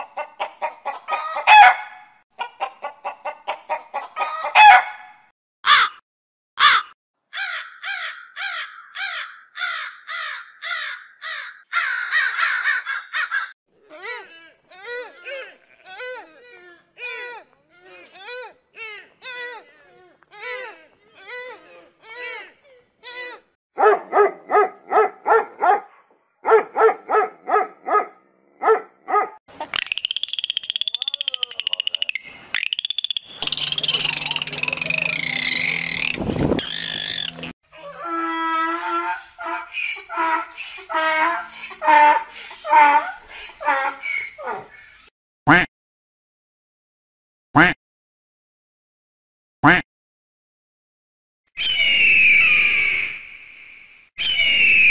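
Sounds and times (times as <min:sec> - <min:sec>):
dog barking: 0:01.4 - 0:02.1, 0:04.4 - 0:05.1, 0:23.8 - 0:29.4
crow cawing: 0:05.6 - 0:06.0, 0:06.6 - 0:13.5
dolphin clicks: 0:29.6 - 0:36.1
dolphin whistle: 0:29.8 - 0:37.5, 0:51.6 - 0:53.4, 0:54.2 - 0:54.9.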